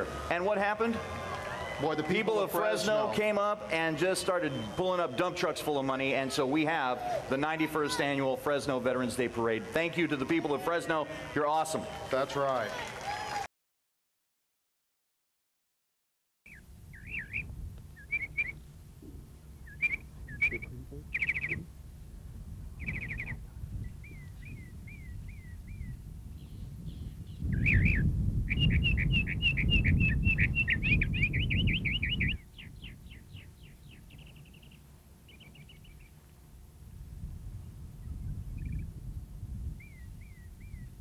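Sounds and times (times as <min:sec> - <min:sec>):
small birds chirping: 0:16.5 - 0:21.8, 0:22.8 - 0:36.3, 0:38.0 - 0:38.9, 0:39.7 - 0:41.0.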